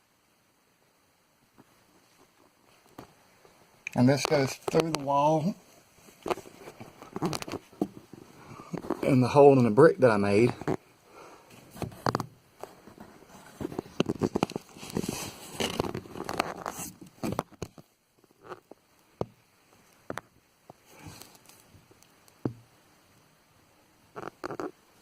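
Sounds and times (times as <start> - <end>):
rustling handling noise: 1.6 - 18.8, 19.7 - 22.2.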